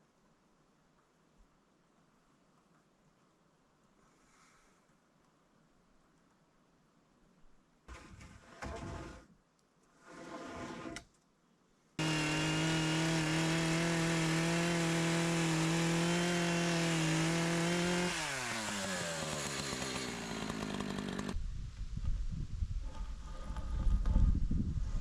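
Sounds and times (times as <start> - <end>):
chainsaw cutting wooden post: 12.0 - 21.4.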